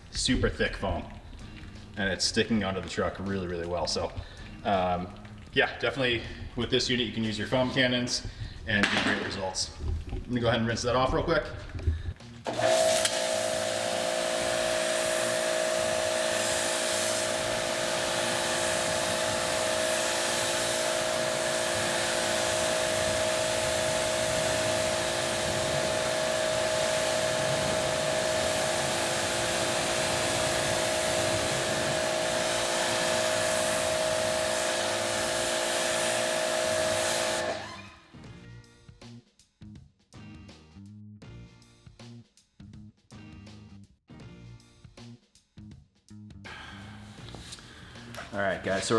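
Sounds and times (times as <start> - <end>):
pressure washer motor hum: 11.9 - 38.0, 46.5 - 48.9
high-pressure water jet hiss: 12.5 - 37.8, 46.5 - 48.9.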